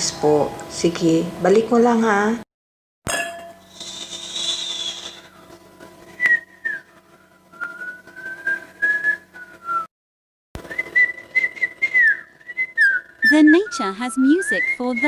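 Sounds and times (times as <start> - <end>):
person whistling a slow tune: 4.2 - 5.4, 6.2 - 9.9, 10.6 - 15.0.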